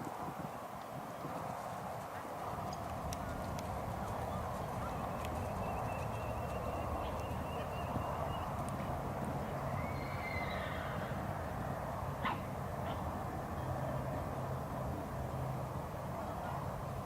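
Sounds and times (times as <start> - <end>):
outdoor background noise: 0.0 - 17.0
horse hoofbeats: 1.0 - 8.9.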